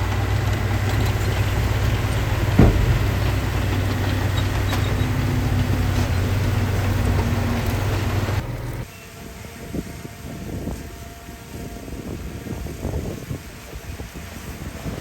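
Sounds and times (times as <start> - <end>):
heavy diesel engine running: 0.0 - 8.8
sharp knock: 2.5 - 5.7.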